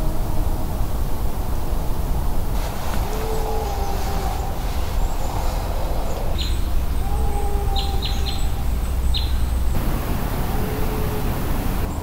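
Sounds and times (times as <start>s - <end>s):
steady low rumble: 8.4s - 12.0s.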